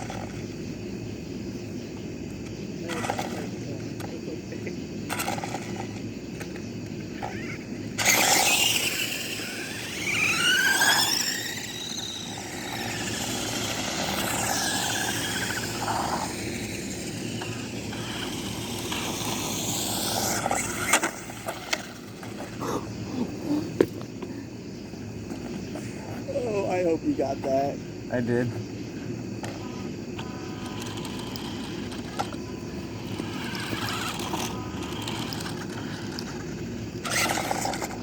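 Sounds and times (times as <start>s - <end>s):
toy car electric motors whining: 0.0s - 0.5s, 2.4s - 4.1s, 5.1s - 24.0s, 29.4s - 38.0s.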